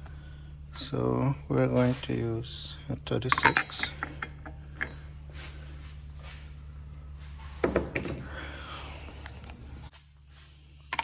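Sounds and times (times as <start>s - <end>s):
steady low hum: 0.0s - 11.0s
metal tools knocking and clattering: 2.9s - 5.5s, 7.6s - 8.5s.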